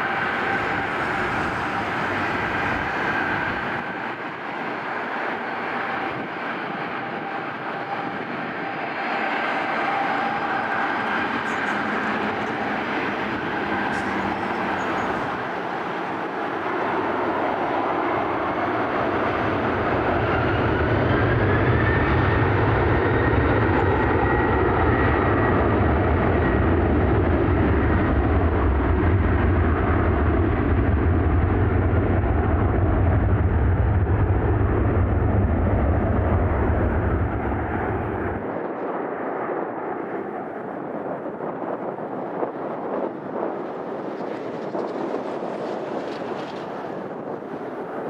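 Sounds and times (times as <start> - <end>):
jet engine whine: 0.0 - 48.0
jet engines roaring: 0.0 - 48.0.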